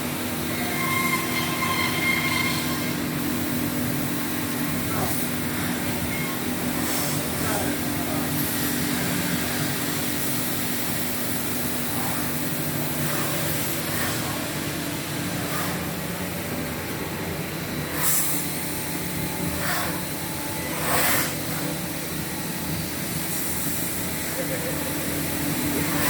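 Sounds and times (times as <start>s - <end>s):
short hissing bursts: 17.9s - 18.8s.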